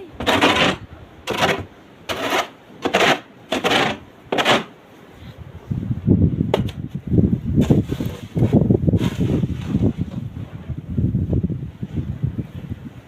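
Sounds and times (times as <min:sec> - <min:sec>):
wind rumble on microphone: 0:05.1 - 0:13.0.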